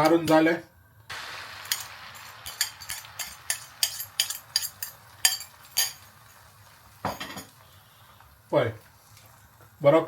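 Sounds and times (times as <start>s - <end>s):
eggs sizzling in oil: 0.0s - 10.0s.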